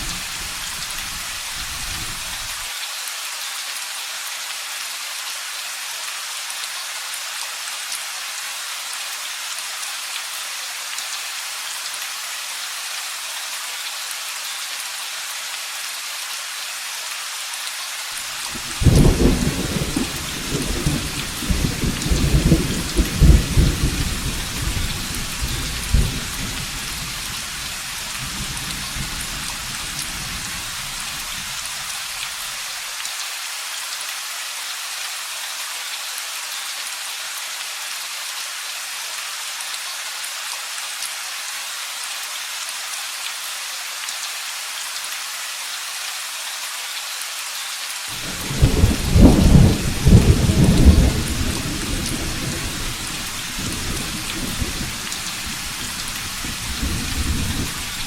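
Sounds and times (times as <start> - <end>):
rain hissing: 0.0 - 2.8, 18.0 - 33.0, 47.3 - 58.0
thunder rumbling: 18.6 - 26.6, 48.2 - 58.0.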